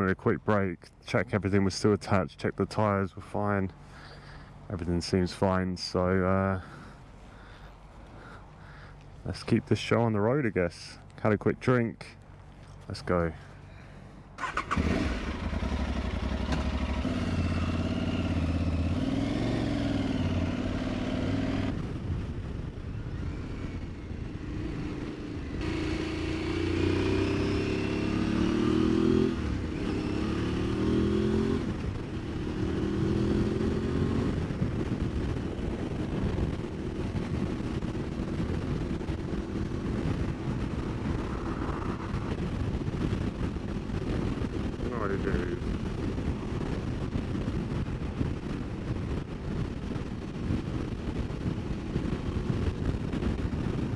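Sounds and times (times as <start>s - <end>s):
motorcycle engine accelerating: 14.4s - 53.9s.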